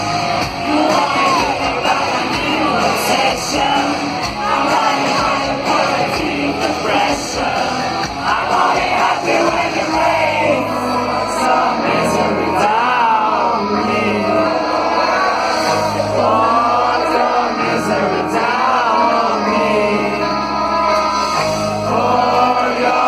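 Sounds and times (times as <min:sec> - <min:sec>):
live rock band playing: 0:00.0 - 0:23.0
woman singing: 0:00.6 - 0:14.5.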